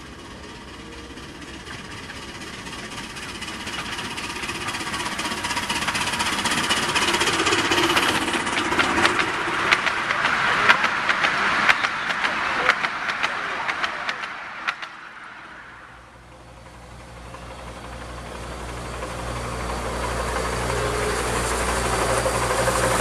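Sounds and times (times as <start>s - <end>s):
miniature train approaching: 0.0s - 23.0s
sharp clicks: 10.8s - 15.0s.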